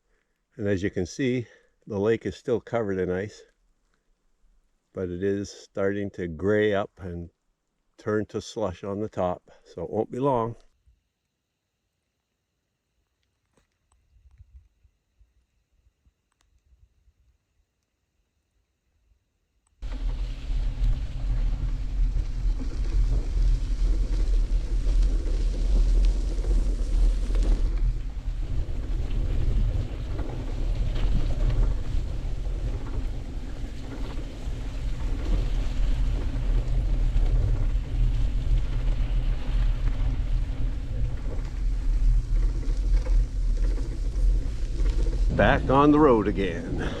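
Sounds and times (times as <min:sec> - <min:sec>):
wind buffeting microphone: 0:19.8 - 0:47.0.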